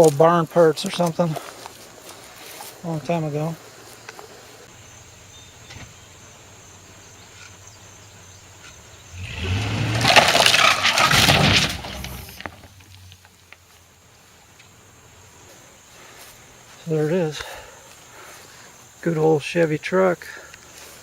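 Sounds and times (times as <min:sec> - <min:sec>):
pickup truck engine pulling hard: 0:09.0 - 0:13.1
timber cracking and splintering: 0:09.2 - 0:13.2.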